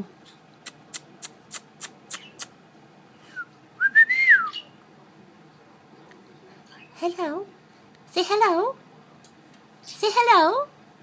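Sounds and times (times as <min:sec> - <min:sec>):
parrot chirps: 0:00.6 - 0:02.6.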